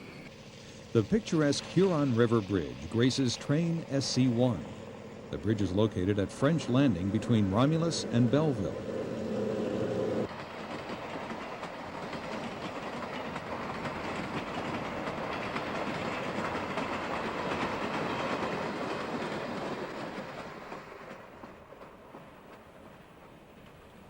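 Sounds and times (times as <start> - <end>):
train wheels clacking over rail joints: 10.2 - 24.0.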